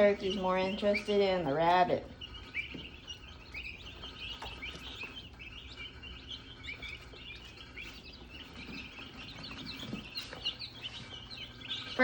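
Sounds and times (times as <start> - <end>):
chicks peeping: 0.0 - 12.0
faint low hum: 0.0 - 12.0.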